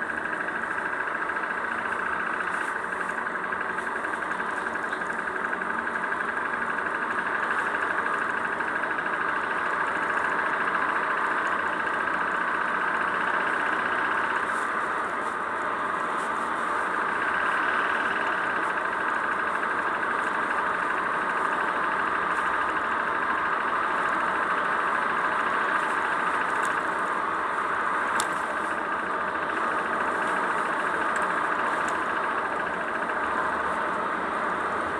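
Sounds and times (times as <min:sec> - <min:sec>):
engine ticking rattle: 0:00.0 - 0:34.9
petrol engine running: 0:00.0 - 0:34.9.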